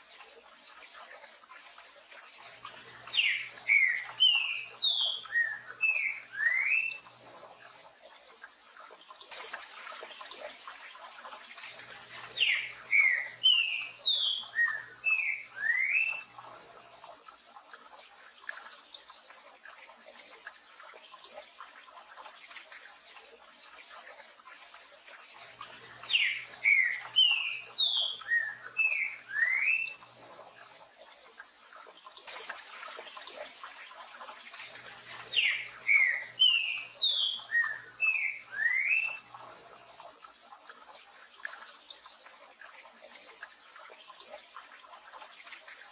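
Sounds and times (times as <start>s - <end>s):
bird whistling song: 3.1s - 7.1s, 12.4s - 16.3s, 26.0s - 30.0s, 35.3s - 39.2s.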